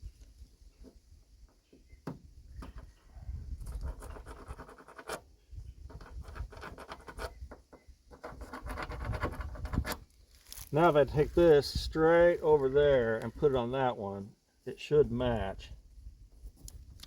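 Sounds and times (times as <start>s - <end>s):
paper scratching and rustling: 8.1s - 10.7s.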